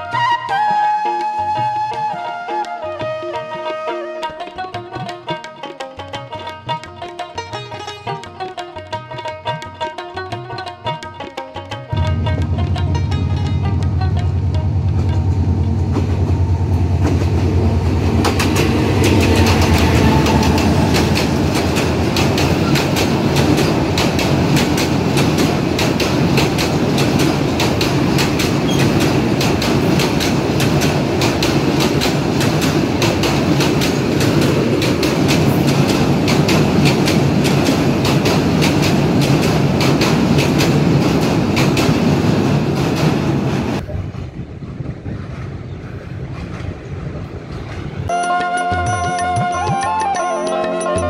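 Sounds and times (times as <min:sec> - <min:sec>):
train wheels clattering over rails: 0:11.9 - 0:48.1
diesel locomotive engine: 0:11.9 - 0:49.6.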